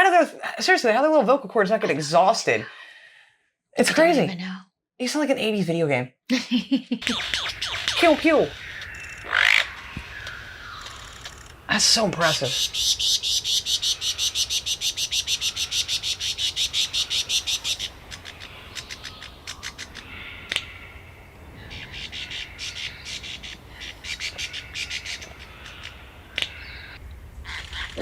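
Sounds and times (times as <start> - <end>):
lyrebird high clicks: 8.8 - 11.6, 16.8 - 20.8, 23.4 - 26.6.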